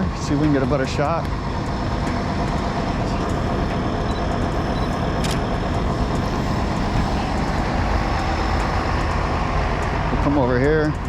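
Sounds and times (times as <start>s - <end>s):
vehicle engines rumbling: 0.0s - 11.0s.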